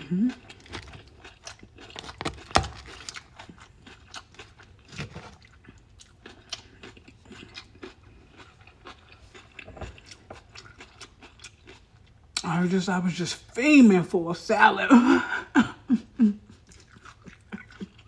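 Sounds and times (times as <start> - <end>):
chewing crunchy salad: 0.0 - 12.5, 16.5 - 18.0.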